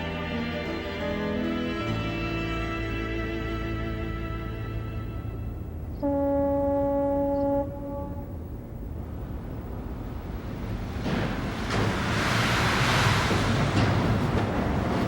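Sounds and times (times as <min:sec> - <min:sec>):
ship's horn blast: 0:00.0 - 0:08.8
rushing wind and water: 0:08.4 - 0:15.0.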